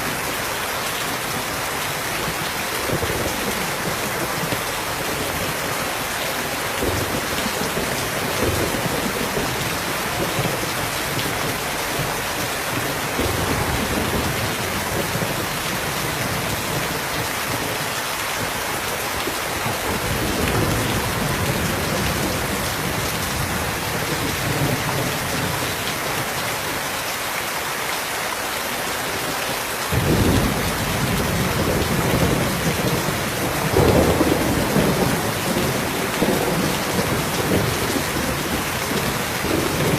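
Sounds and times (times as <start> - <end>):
heavy rain falling: 0.0 - 39.9
thunder rumbling: 2.2 - 17.7, 29.9 - 39.9.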